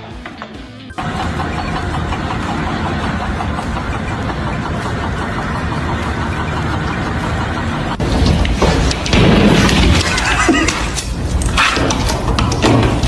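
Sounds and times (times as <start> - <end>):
engine running loudly: 1.0 - 8.0.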